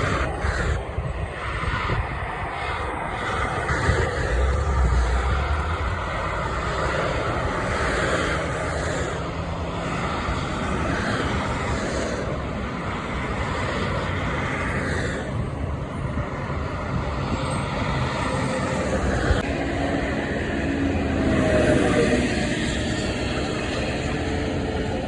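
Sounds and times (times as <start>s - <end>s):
large vehicle engine running: 0.0s - 25.0s
road noise: 0.0s - 25.0s.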